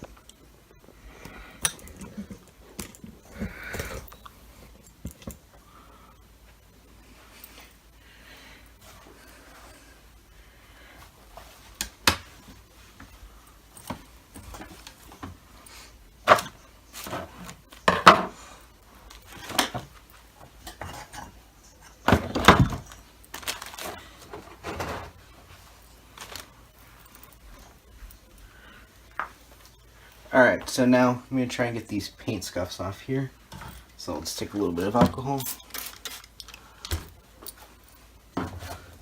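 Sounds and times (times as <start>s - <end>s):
hard objects clattering on work surface: 16.2s - 18.4s.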